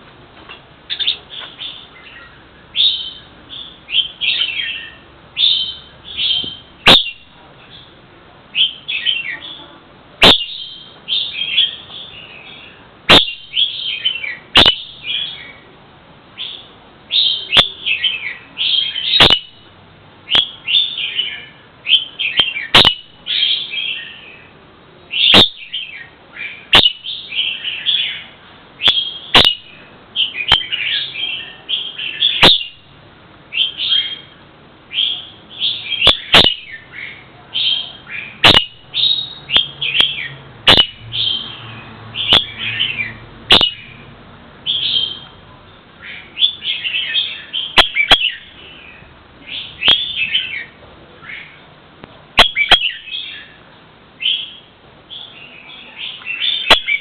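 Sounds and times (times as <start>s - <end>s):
songbird chirping: 0.9s - 15.7s, 16.4s - 32.9s, 33.5s - 51.8s, 52.4s - 57.0s
sharp click: 14.6s - 14.8s, 40.7s - 41.0s.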